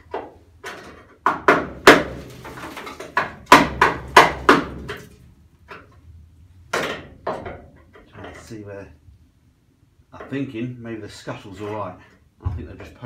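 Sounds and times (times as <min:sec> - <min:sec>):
hammer banging on metal: 0:00.0 - 0:05.1.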